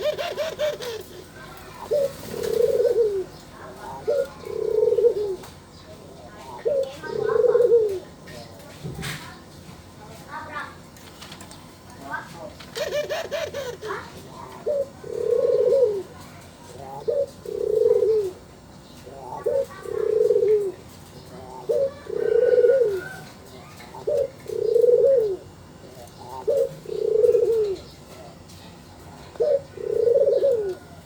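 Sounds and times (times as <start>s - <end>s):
dove cooing: 0.0s - 5.5s, 6.3s - 8.1s, 12.7s - 16.1s, 16.7s - 18.4s, 19.1s - 20.8s, 21.4s - 28.0s, 29.3s - 31.0s.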